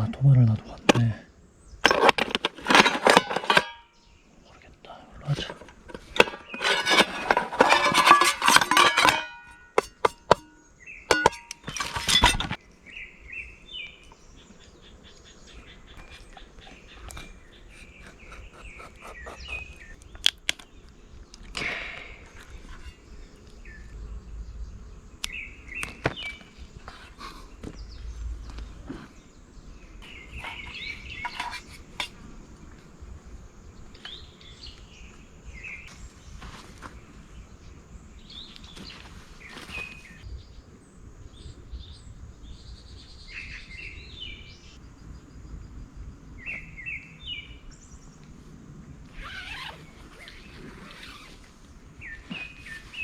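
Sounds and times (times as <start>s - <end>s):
small birds chirping: 0.0s - 53.0s
sharp clicks and knocks: 5.4s - 12.6s
low outdoor rumble: 22.2s - 31.2s.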